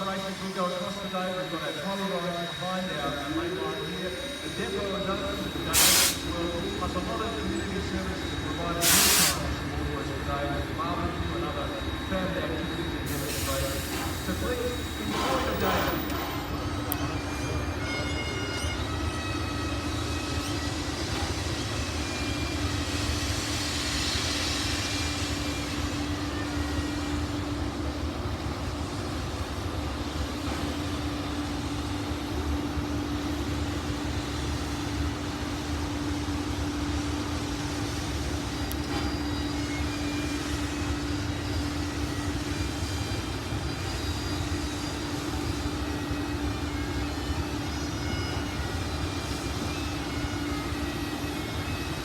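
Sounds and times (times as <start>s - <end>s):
steam locomotive hissing: 0.0s - 52.0s.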